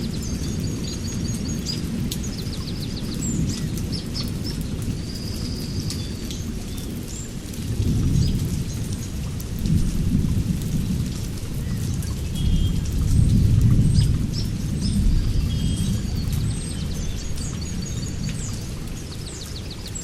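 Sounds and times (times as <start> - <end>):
birds chirping: 11.6 - 20.0.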